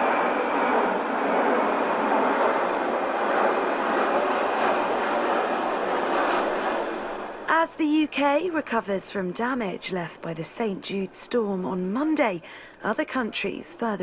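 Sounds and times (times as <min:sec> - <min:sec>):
strong wind blowing: 0:00.0 - 0:07.7.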